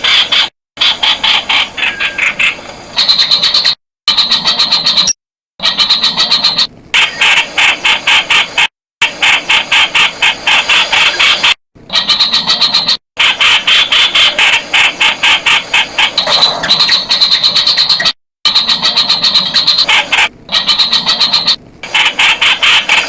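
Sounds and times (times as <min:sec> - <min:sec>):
bird chattering calls: 0:00.0 - 0:07.4, 0:10.8 - 0:23.0.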